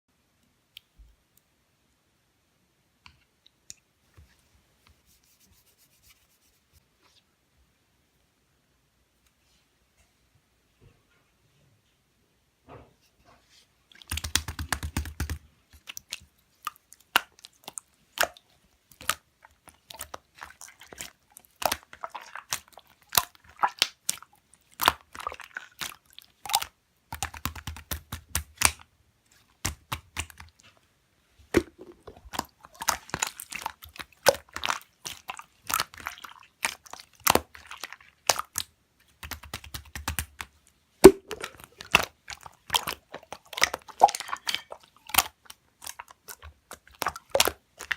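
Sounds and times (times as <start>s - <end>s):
slime clicking and popping: 14.0s - 16.2s, 38.2s - 47.9s.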